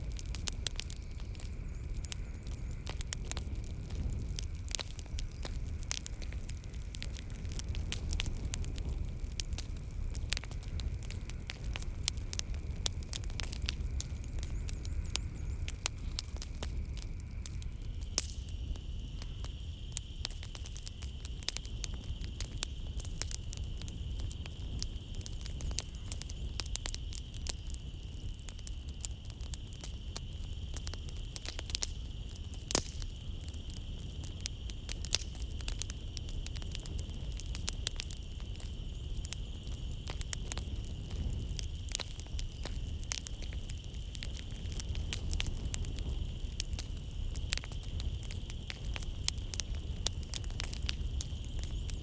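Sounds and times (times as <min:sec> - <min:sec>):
night insects droning: 0:00.0 - 0:52.0
wood fire crackling: 0:00.0 - 0:52.0.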